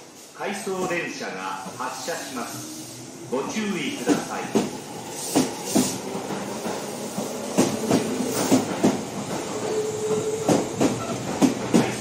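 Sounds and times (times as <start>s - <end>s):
train running rumble: 0.8s - 12.0s
train wheels clicking on rail joints: 4.0s - 12.0s.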